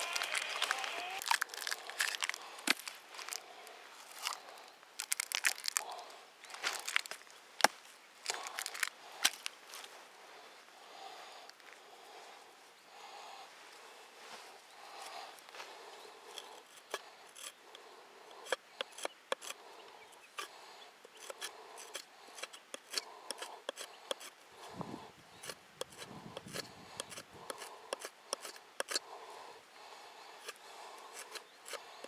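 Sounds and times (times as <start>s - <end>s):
scraping strokes on wood: 16.3s - 17.7s, 18.3s - 29.1s, 30.4s - 32.0s
sharp clicks of hand tool: 25.8s - 29.0s.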